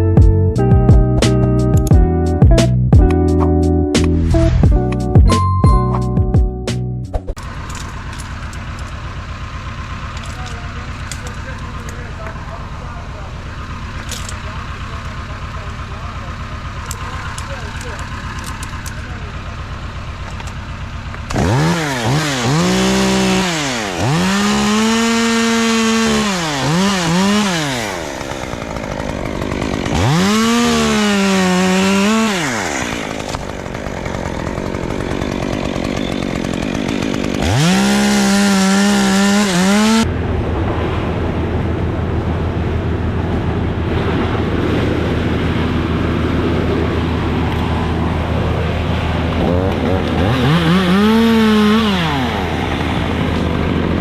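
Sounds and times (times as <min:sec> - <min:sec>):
low engine drone: 0:07.4 - 0:35.4, 0:38.9 - 0:54.0
chainsaw revving: 0:07.4 - 0:40.1, 0:44.7 - 0:54.0.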